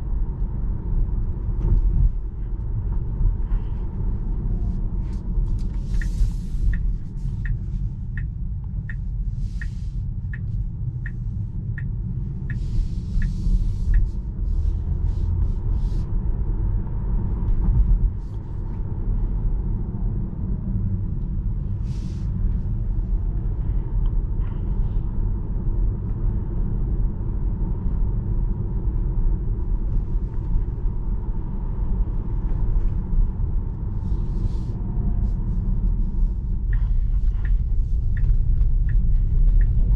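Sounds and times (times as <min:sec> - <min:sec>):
turn signal ticking: 0:05.2 - 0:15.4, 0:34.8 - 0:39.9.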